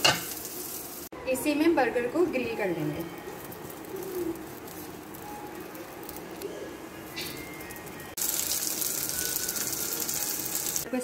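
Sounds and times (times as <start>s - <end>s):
bird cooing: 3.1s - 8.1s.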